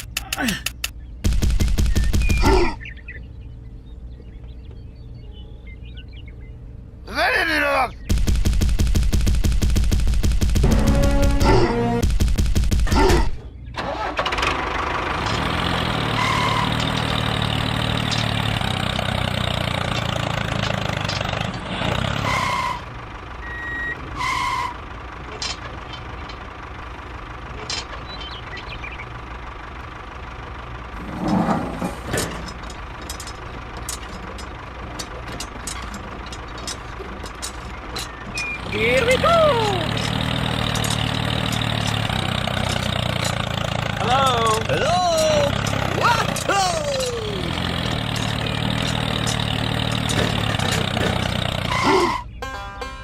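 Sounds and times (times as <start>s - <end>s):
vehicle engine running: 0.0s - 53.0s.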